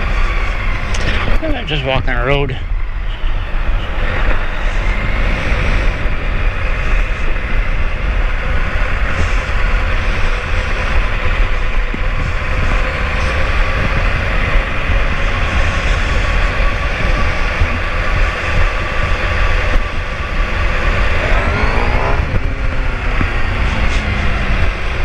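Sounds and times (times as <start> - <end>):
wind rumble on microphone: 0.0 - 25.0
motorcycle engine running: 5.6 - 25.0.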